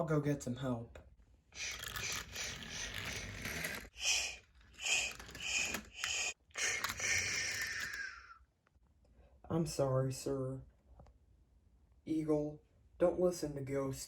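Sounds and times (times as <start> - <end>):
steam hissing: 4.0 - 7.8.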